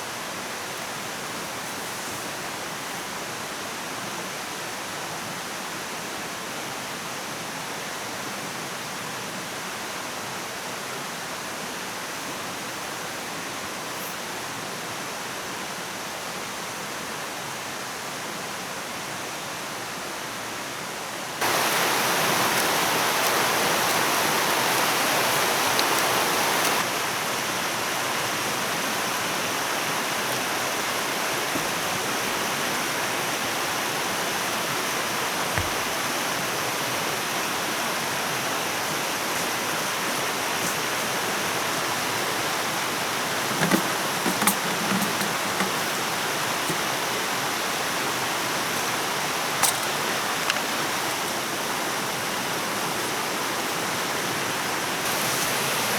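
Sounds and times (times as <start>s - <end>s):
running water rushing: 21.4s - 55.9s.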